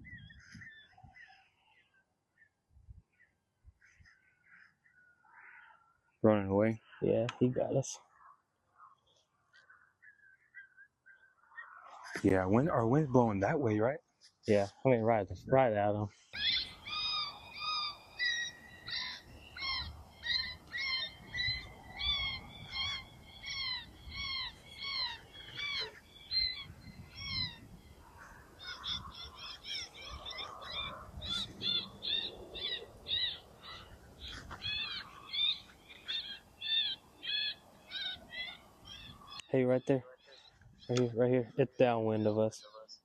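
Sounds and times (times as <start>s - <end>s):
wind rumble on microphone: 0.0s - 1.2s, 2.7s - 3.8s, 18.0s - 35.2s.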